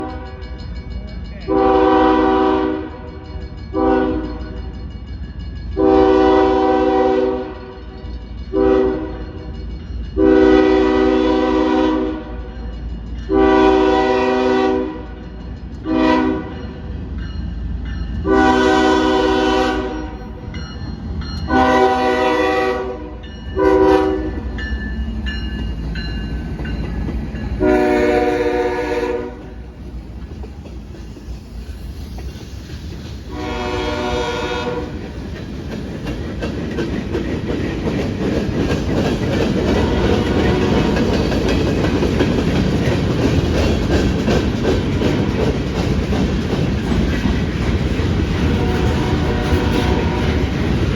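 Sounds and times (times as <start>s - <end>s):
locomotive air horn blasts: 0.0s - 0.4s, 1.5s - 3.1s, 3.7s - 4.6s, 5.8s - 7.7s, 8.5s - 9.3s, 10.2s - 12.5s, 13.3s - 15.2s, 15.9s - 16.6s, 18.2s - 20.2s, 21.5s - 24.4s, 27.6s - 29.4s, 33.3s - 35.0s, 39.8s - 41.0s, 48.5s - 50.5s
train rumbling past: 0.0s - 50.9s.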